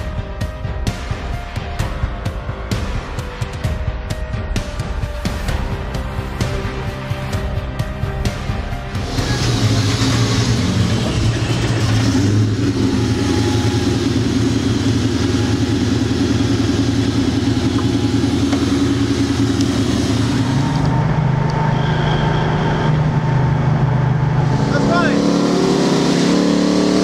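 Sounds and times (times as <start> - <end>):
low engine drone: 5.2 - 27.0
car engine idling: 8.1 - 25.5.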